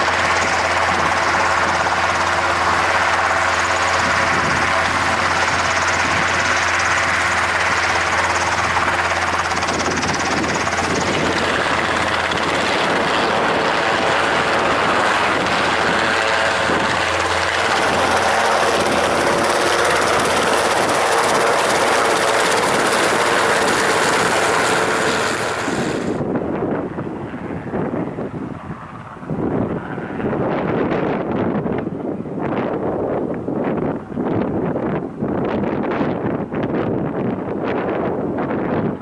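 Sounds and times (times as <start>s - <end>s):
hissing turbine whine: 0.0s - 26.3s
propeller noise: 0.0s - 39.0s
turboprop engine running: 0.0s - 39.0s.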